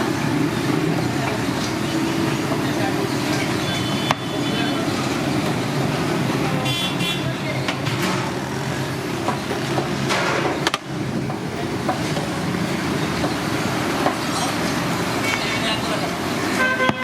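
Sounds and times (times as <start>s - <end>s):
vehicle engines: 0.0s - 17.0s
car horn tooting: 3.4s - 4.9s, 6.6s - 7.6s, 16.4s - 17.0s.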